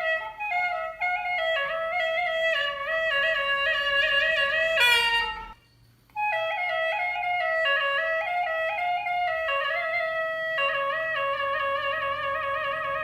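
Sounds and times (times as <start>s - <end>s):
woodwind melody: 0.0s - 13.0s.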